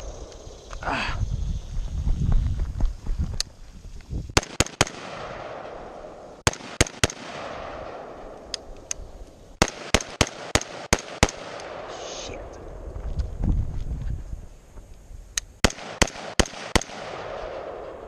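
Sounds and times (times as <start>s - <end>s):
gunshots: 4.4s - 8.4s, 9.6s - 12.0s, 15.6s - 18.0s.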